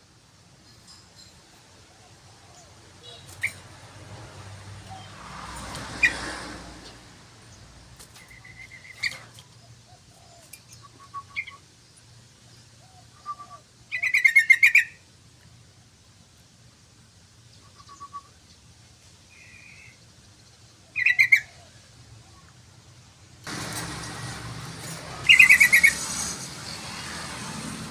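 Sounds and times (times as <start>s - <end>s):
bird chattering song: 12.8s - 15.0s, 17.5s - 18.7s, 19.3s - 21.7s, 25.2s - 26.0s
bird calling: 20.8s - 22.5s.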